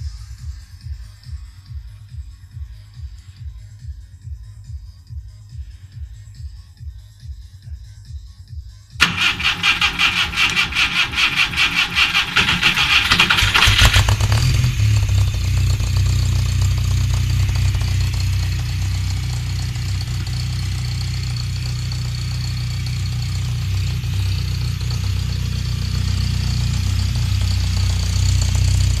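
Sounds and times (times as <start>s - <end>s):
car engine running: 9.0s - 29.0s.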